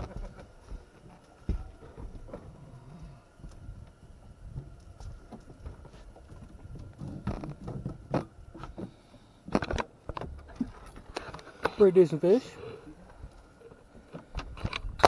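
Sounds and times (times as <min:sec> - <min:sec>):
knocks and scrapes in a boat: 0:04.5 - 0:11.8.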